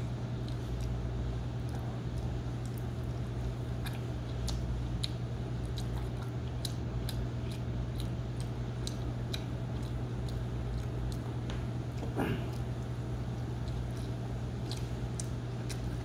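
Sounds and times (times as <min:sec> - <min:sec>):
mouth chewing smacks and clicks: 0:00.4 - 0:16.0.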